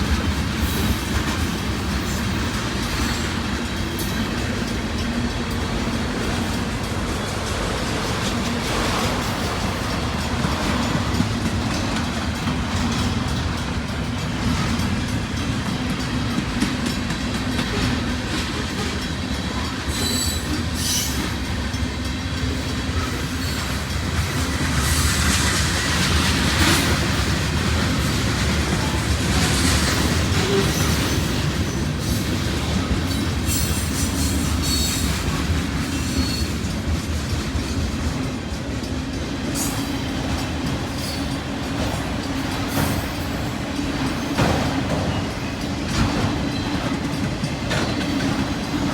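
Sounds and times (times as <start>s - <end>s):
freight train rumbling past: 0.0s - 48.9s
wheels clicking over rail joints: 0.0s - 48.9s
high wheel squeals: 19.9s - 21.4s.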